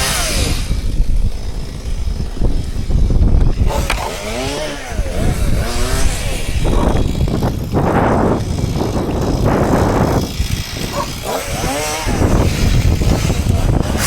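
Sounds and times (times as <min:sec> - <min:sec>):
chainsaw engine revving: 0:00.0 - 0:14.0.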